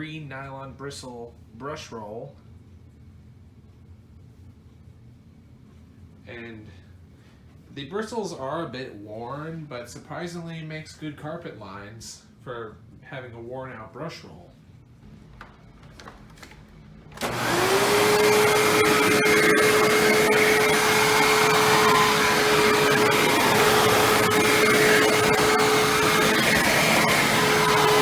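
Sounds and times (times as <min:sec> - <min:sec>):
vacuum cleaner motor running: 0:15.9 - 0:28.0.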